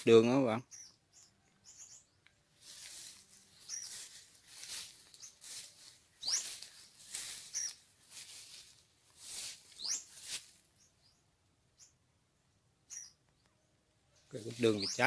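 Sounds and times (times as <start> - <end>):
small birds chirping: 0.0 - 15.0
rustling bursts: 2.6 - 10.7.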